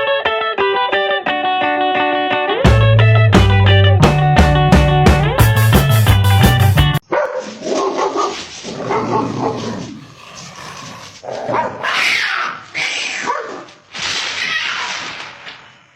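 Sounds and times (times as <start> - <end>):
dog barking and yelping: 7.1 - 10.0, 11.2 - 13.8.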